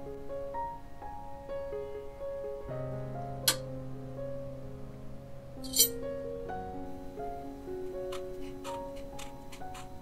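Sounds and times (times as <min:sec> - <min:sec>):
soft piano music: 0:00.0 - 0:10.0
knife blade clink on stone: 0:05.6 - 0:06.0.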